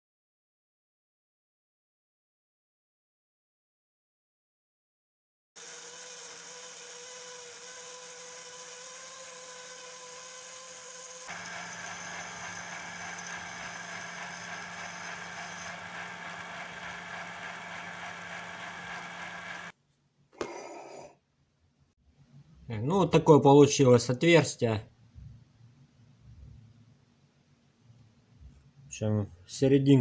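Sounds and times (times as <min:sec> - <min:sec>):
drill with hole saw cutting: 0:05.6 - 0:19.7.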